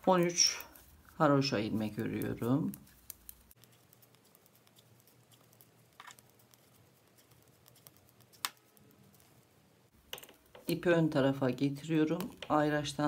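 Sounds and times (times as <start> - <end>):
knitting needles clicking: 1.6 - 9.4, 11.9 - 12.8.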